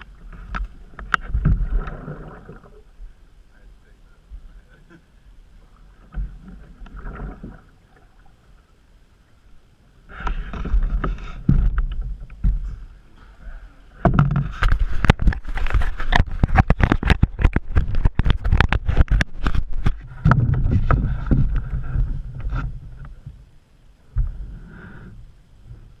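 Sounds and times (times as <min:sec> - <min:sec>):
canoe knocking and clattering: 0:14.0 - 0:22.7
low rumble: 0:19.7 - 0:26.0.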